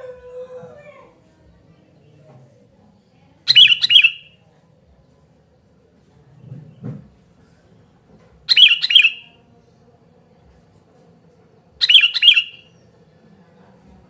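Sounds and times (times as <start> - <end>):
bird calling: 3.5 - 4.3, 8.5 - 9.3, 11.8 - 12.6
faint low thump: 6.4 - 7.2.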